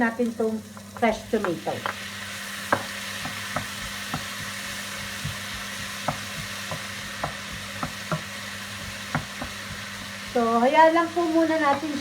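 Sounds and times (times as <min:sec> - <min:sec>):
vegetables sizzling in oil: 0:00.0 - 0:12.0
utensil clicking against pan: 0:00.8 - 0:02.0, 0:02.7 - 0:10.4.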